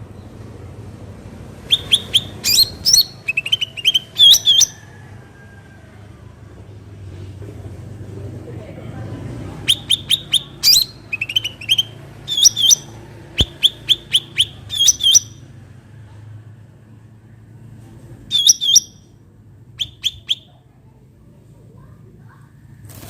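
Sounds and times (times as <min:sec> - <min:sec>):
songbird sharp high calls: 0:01.7 - 0:04.8, 0:09.7 - 0:15.4, 0:18.3 - 0:19.0.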